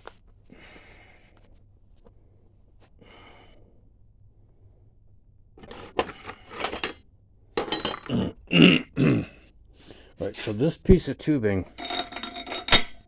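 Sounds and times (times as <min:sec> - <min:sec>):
metal parts clinking and scraping: 0:05.6 - 0:07.0, 0:07.6 - 0:08.4, 0:11.7 - 0:13.0.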